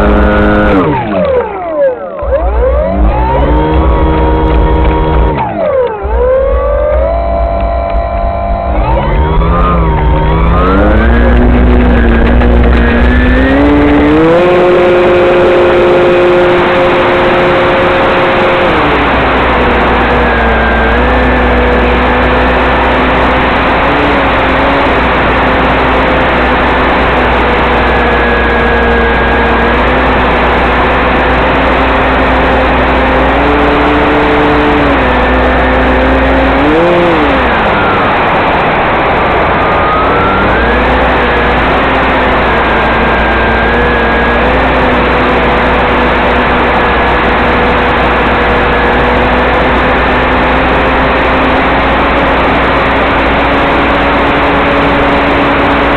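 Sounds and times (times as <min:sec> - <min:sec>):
model airplane motor running: 0:00.0 - 0:55.9.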